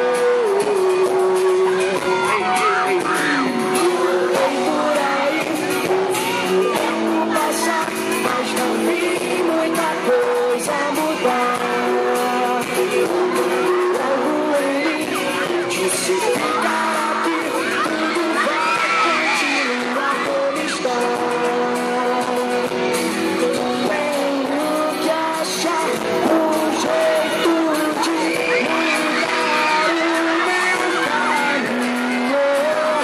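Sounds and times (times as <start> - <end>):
band playing pop music: 0.0 - 33.0
person singing: 0.0 - 33.0.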